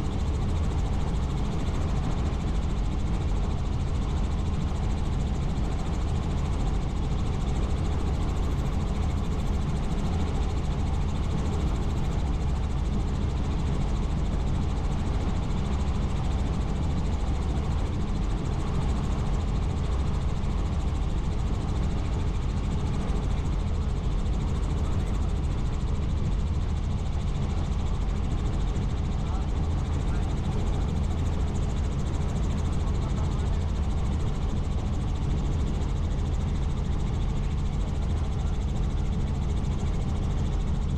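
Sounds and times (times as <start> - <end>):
helicopter rotor and engine drone: 0.0 - 40.9.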